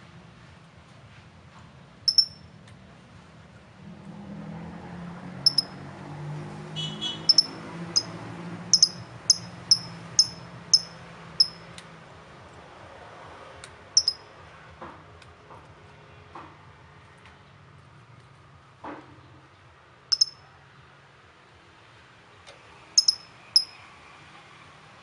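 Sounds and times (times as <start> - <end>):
small bird chirping: 2.1 - 2.4, 5.5 - 5.8, 7.2 - 11.6, 14.0 - 14.2, 20.1 - 20.4, 23.0 - 23.8.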